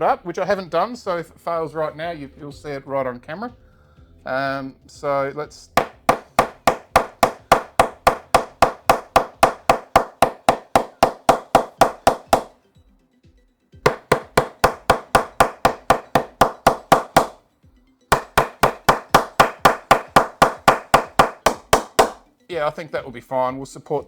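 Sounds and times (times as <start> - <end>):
cricket bat being knocked: 5.8 - 12.5, 13.9 - 17.4, 18.1 - 22.2.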